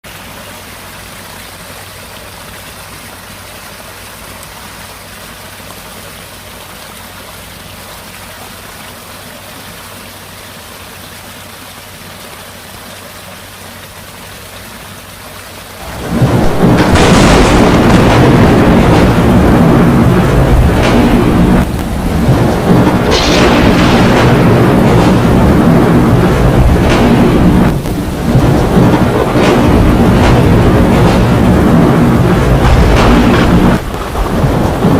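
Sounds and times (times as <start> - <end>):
heavy rain: 0.0 - 34.9
thunder rumbling: 15.8 - 34.9.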